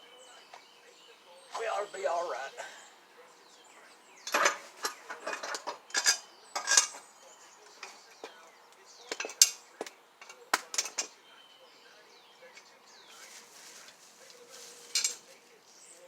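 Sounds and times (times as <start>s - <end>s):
metal tools clinking and clanking: 4.2s - 8.4s, 9.1s - 11.2s, 14.7s - 15.4s.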